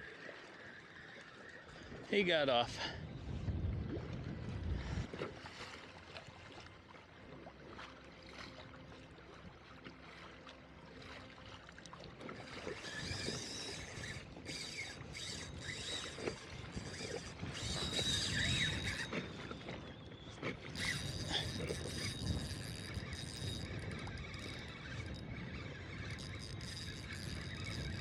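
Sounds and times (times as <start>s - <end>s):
water noise: 0.0s - 28.0s
wind rumble on microphone: 1.7s - 6.7s, 12.4s - 28.0s
high mechanical whine with clicking: 12.2s - 28.0s.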